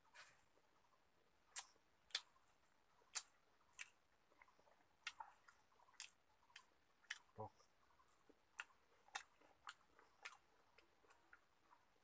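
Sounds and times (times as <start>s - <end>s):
faint chewing with mouth smacks: 1.4s - 12.0s.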